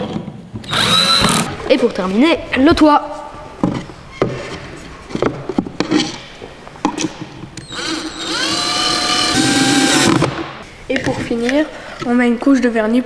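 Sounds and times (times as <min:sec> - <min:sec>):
power drill motor: 0:00.6 - 0:01.5, 0:07.6 - 0:10.2.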